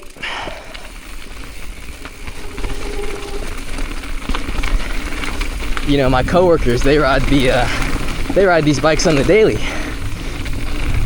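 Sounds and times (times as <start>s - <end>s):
bike rattles and clicks: 0.0s - 11.0s
bike tyres rumbling on dirt: 0.0s - 11.0s
wind noise on microphone: 9.2s - 11.0s.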